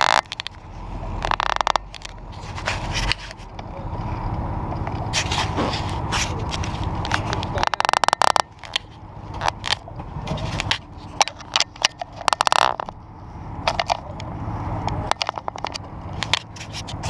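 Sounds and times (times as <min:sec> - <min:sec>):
hand tools clicking and scraping: 0:00.0 - 0:00.6, 0:01.2 - 0:03.6, 0:05.0 - 0:12.9, 0:14.9 - 0:17.0
low steady rumble: 0:00.0 - 0:17.0.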